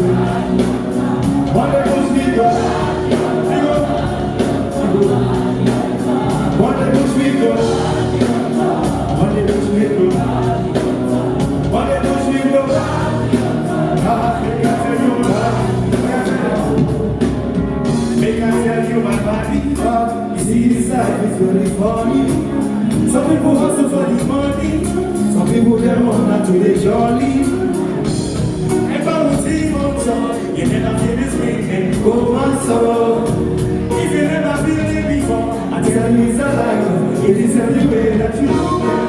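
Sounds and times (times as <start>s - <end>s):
live band music: 0.0s - 39.0s
person singing: 28.7s - 39.0s.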